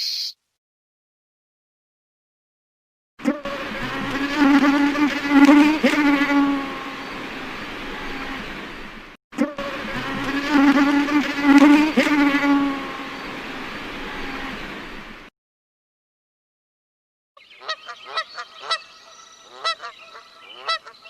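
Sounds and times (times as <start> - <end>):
flying insect buzzing: 3.2 - 8.5, 9.4 - 13.4.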